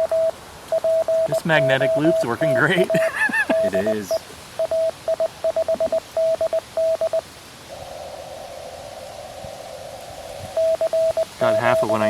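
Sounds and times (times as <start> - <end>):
morse code tone: 0.0 - 7.2, 10.6 - 12.0
receiver hiss: 0.0 - 12.0.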